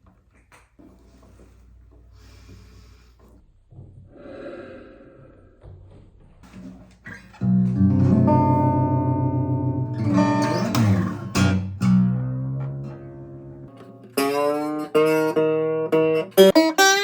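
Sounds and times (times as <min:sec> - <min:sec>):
faint handling noises: 0:00.0 - 0:03.4
acoustic guitar strummed: 0:07.4 - 0:17.0.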